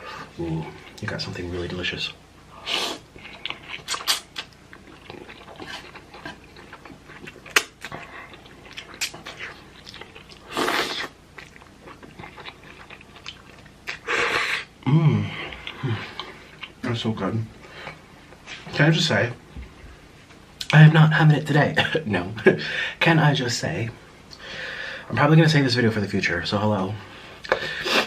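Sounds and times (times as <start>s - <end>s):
person chewing noodles: 2.7s - 14.7s, 15.4s - 16.8s
noodle slurps: 10.4s - 11.2s
person humming briefly: 14.8s - 16.0s.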